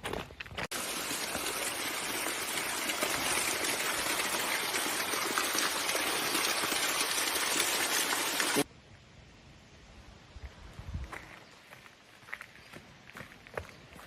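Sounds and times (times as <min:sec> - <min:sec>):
stream water rushing: 0:00.7 - 0:08.7.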